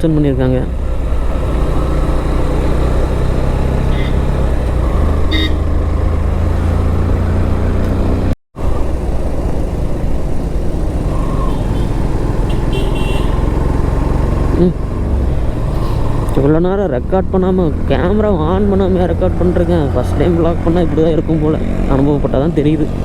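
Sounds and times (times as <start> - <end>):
road noise: 0.0 - 23.0
motorcycle engine running: 0.4 - 23.0
vehicle horn toots: 3.9 - 4.3, 5.3 - 5.8, 11.5 - 13.6.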